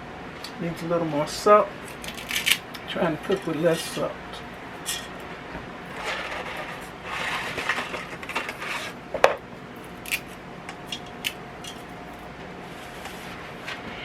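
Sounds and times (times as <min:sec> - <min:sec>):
utensils rattling in a pot: 0:04.8 - 0:05.2, 0:10.0 - 0:11.9.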